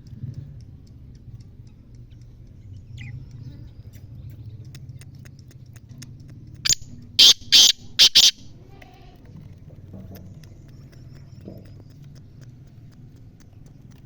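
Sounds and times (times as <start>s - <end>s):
faint irregular ticking: 0.0s - 14.0s
falling chirp: 6.7s - 8.4s
loud bird call: 6.7s - 8.4s.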